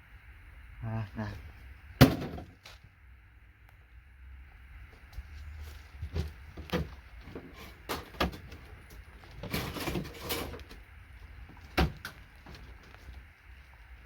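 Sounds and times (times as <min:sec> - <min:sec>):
scraping rattle: 0:09.3 - 0:10.7.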